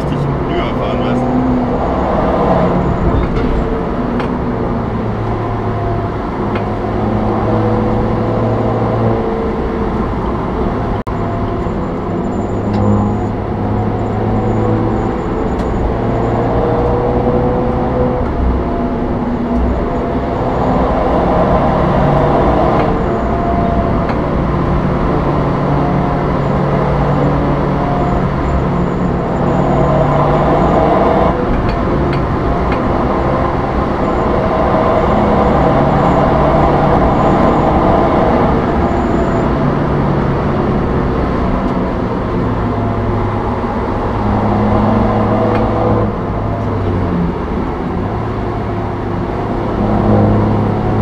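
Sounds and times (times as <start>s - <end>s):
car engine accelerating: 0.0s - 51.0s.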